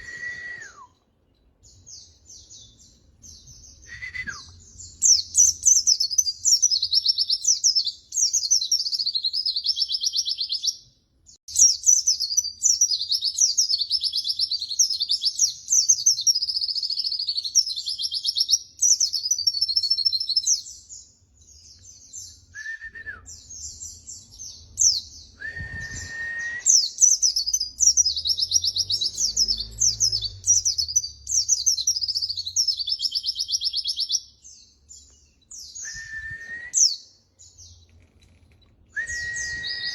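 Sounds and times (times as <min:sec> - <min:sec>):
short low whistles: 0:00.0 - 0:01.0, 0:03.8 - 0:04.6, 0:22.5 - 0:23.4, 0:25.4 - 0:26.9, 0:35.6 - 0:37.0, 0:38.9 - 0:39.9
bird twittering song: 0:00.0 - 0:39.9.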